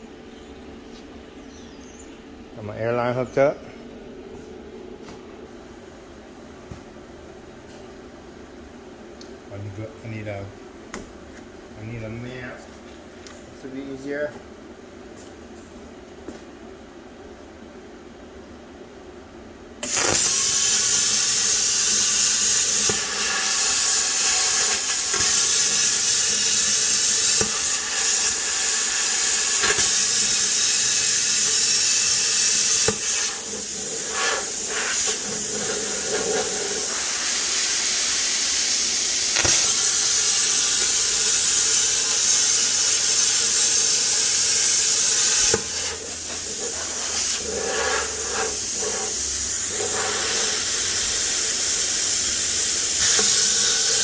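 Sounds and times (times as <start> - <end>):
plasma cutter hissing: 19.8 - 54.0.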